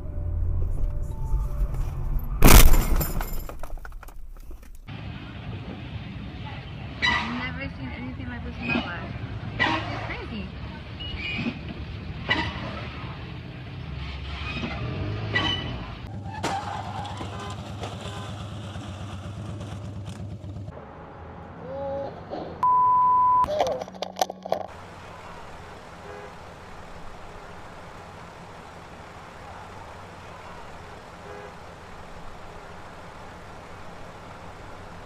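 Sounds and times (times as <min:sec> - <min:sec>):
vehicle and road noise: 0:00.0 - 0:35.0
high beep: 0:22.6 - 0:23.5.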